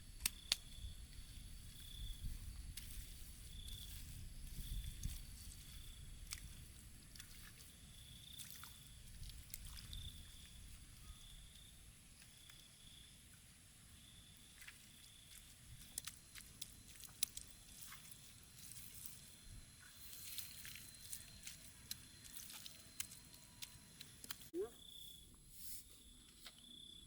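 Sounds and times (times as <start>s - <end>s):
faint insect trill: 0.0s - 27.0s
small sharp clicks and crackles: 0.2s - 0.8s, 14.6s - 19.2s, 20.1s - 24.5s.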